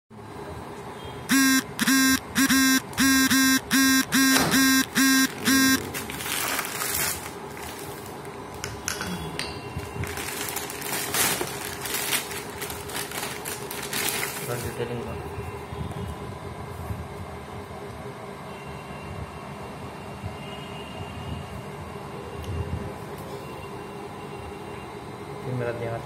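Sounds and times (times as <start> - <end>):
harsh electronic buzzer pulses: 1.2 - 5.9.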